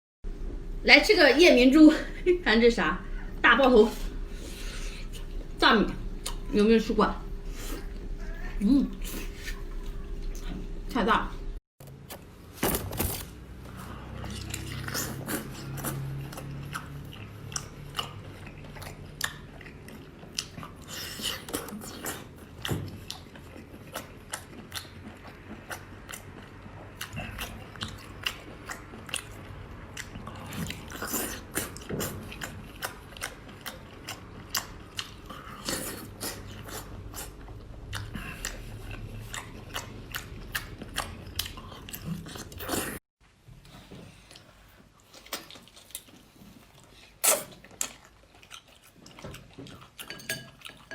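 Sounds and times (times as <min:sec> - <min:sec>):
chewing and biting seafood: 0:13.0 - 0:43.0, 0:44.1 - 0:50.9.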